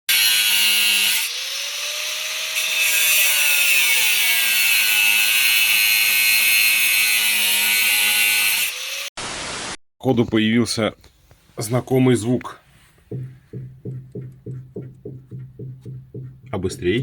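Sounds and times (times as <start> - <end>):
angle grinder cutting: 0.1 - 9.1.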